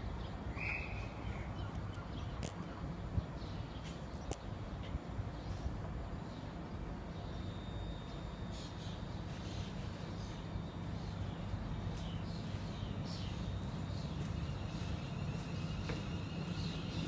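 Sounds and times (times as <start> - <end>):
electric train humming: 5.8 - 17.0.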